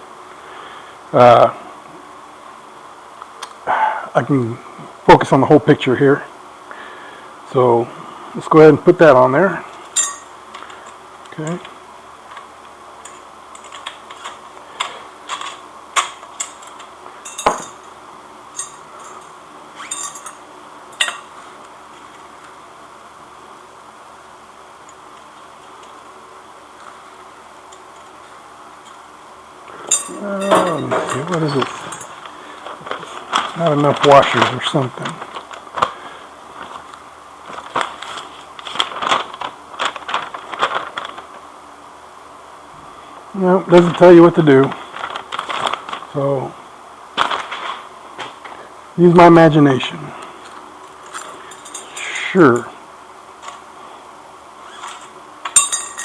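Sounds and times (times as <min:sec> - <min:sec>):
chain clinking against metal: 0:09.7 - 0:10.4, 0:17.2 - 0:17.9, 0:18.5 - 0:20.4, 0:21.0 - 0:21.3, 0:29.8 - 0:32.2, 0:51.0 - 0:52.2, 0:55.6 - 0:56.0
packaging rustling: 0:30.2 - 0:41.4, 0:44.6 - 0:46.2, 0:47.2 - 0:48.6.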